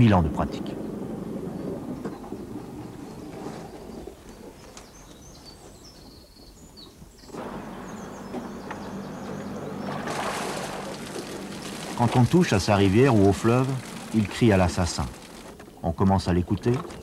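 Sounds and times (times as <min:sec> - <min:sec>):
low steady rumble: 0:00.0 - 0:04.6, 0:07.4 - 0:15.6
small birds chirping: 0:00.0 - 0:17.0.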